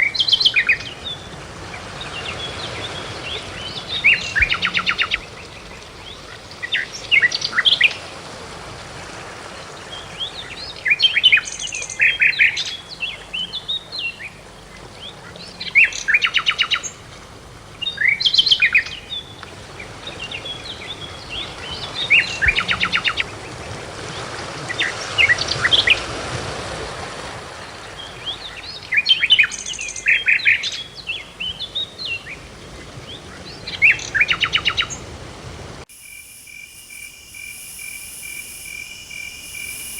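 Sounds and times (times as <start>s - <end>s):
faint steady hiss: 35.9s - 39.9s
songbird chirps and trills: 35.9s - 39.9s.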